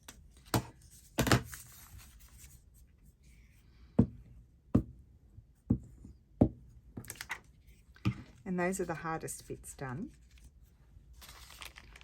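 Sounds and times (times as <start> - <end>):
paper rustling: 11.2 - 12.0.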